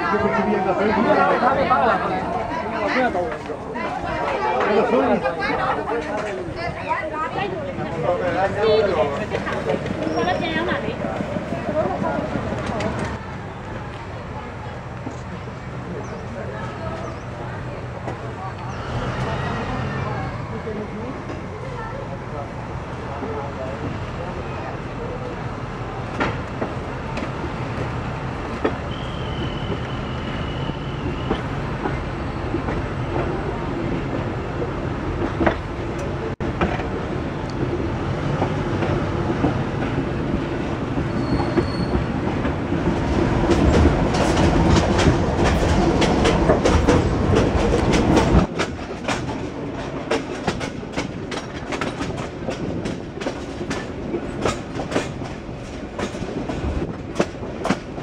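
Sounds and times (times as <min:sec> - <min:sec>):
train carriage rumbling on rails: 0:00.0 - 0:58.0
wheels clicking over rail joints: 0:35.2 - 0:58.0
brief high squeal: 0:41.1 - 0:42.1.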